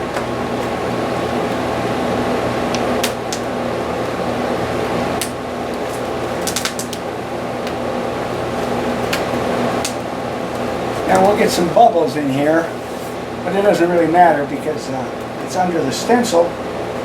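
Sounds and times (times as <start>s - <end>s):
fan hum: 0.0s - 17.0s
low electrical buzz: 0.0s - 17.0s.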